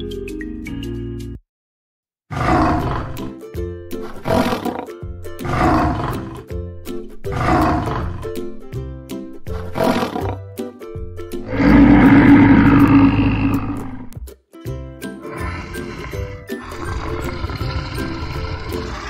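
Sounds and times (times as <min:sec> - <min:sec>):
background music: 0:00.0 - 0:01.4, 0:02.3 - 0:19.0
lion roaring: 0:02.3 - 0:03.3, 0:04.0 - 0:06.5, 0:07.2 - 0:08.4, 0:09.5 - 0:10.4, 0:11.4 - 0:14.2, 0:15.3 - 0:19.0.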